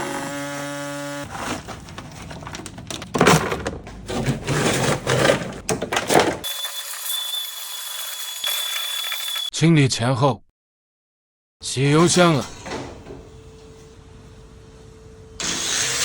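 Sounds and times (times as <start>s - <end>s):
dry ice blaster hissing: 6.5s - 9.5s.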